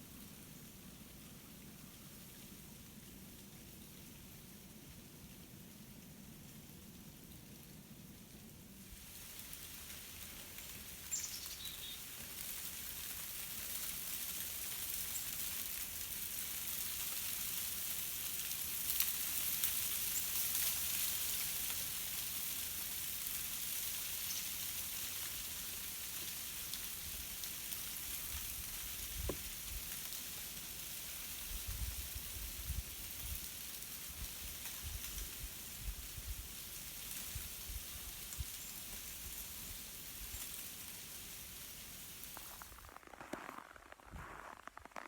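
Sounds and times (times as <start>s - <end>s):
ice cracking on branches: 40.8s - 45.0s.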